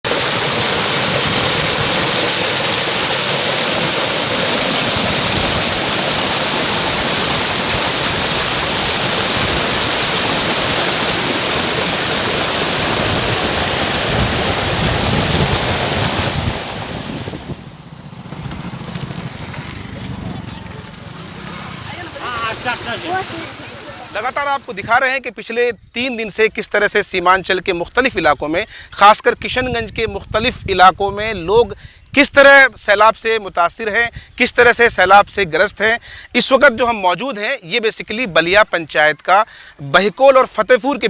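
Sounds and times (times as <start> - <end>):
floodwater rushing: 0.0 - 25.4.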